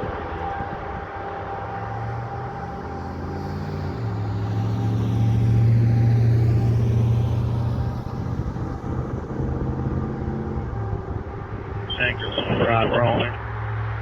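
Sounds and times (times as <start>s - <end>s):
diesel truck engine passing: 0.1s - 14.0s.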